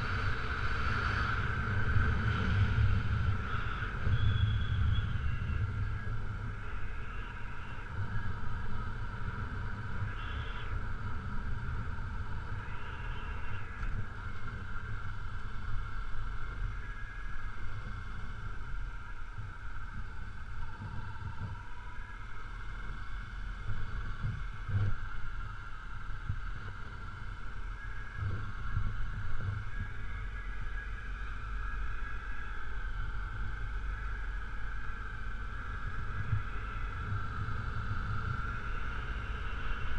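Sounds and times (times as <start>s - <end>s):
wind rumble: 0.0s - 39.9s.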